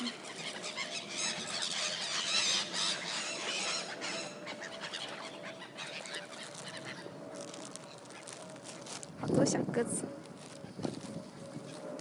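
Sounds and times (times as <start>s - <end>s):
gulls squealing: 0.0s - 8.5s.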